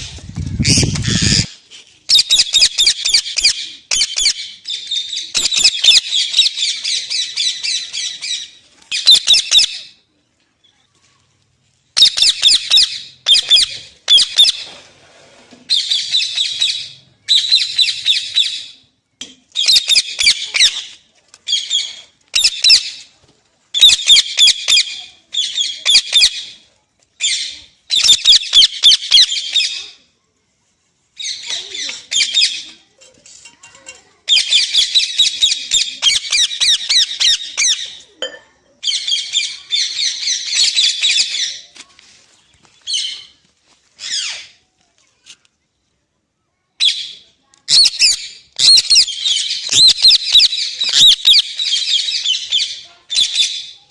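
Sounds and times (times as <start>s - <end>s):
parrot squawking: 0.6s - 1.5s, 47.7s - 52.6s.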